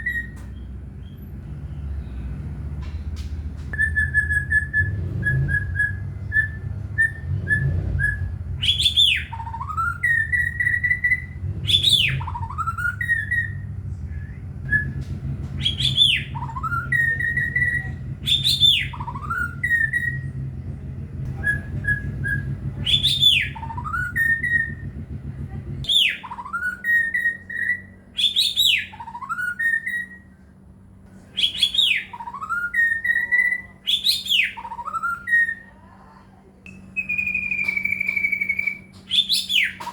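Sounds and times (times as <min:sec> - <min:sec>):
bird singing whistled phrase: 0:00.0 - 0:01.2, 0:03.7 - 0:20.4, 0:21.3 - 0:25.0, 0:25.9 - 0:30.5, 0:31.3 - 0:35.8, 0:36.7 - 0:39.9
low rumble: 0:00.0 - 0:25.9.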